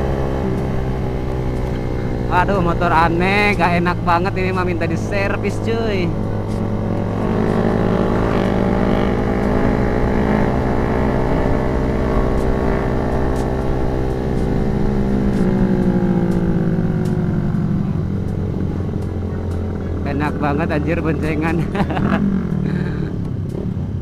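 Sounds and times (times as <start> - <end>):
motorcycle engine running: 0.0 - 24.0
wind rumble on microphone: 5.9 - 20.0.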